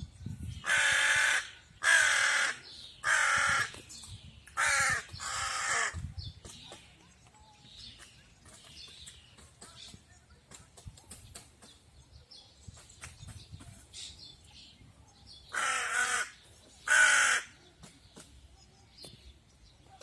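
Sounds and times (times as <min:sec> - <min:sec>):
crow cawing: 0:00.7 - 0:03.8, 0:04.6 - 0:06.0, 0:15.5 - 0:17.6
faint small birds chirping: 0:02.6 - 0:20.0.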